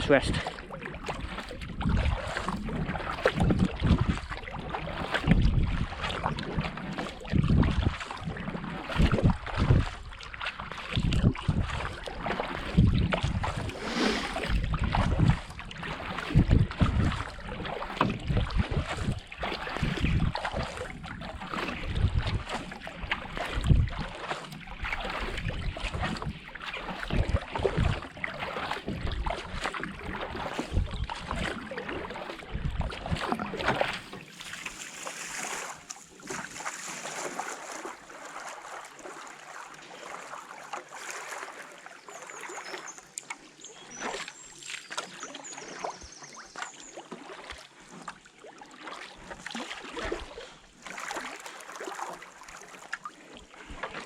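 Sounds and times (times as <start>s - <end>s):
water lapping and dripping: 0.0s - 54.0s
wind buffeting microphone: 1.6s - 4.4s, 5.2s - 6.3s, 7.2s - 10.1s, 11.0s - 17.3s, 18.0s - 20.9s, 21.7s - 22.6s, 23.3s - 24.1s, 27.0s - 28.1s, 28.9s - 31.7s.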